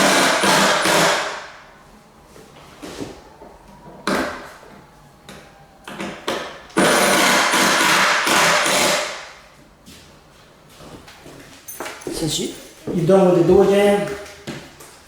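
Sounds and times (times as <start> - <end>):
power drill driving screws: 0.0 - 1.3, 6.8 - 9.2.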